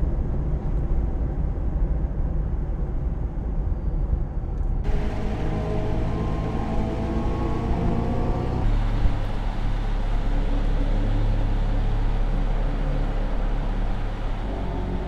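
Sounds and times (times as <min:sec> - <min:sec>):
road and wind noise: 0:00.0 - 0:15.0
electric car humming: 0:04.8 - 0:15.0.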